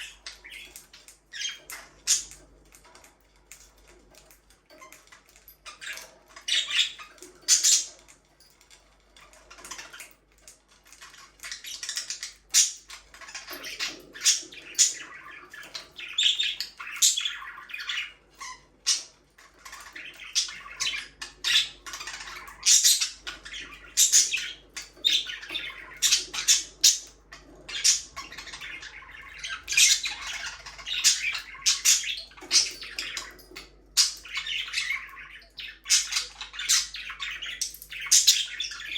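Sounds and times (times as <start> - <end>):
budgerigars chirping and squawking: 0.0 - 38.9.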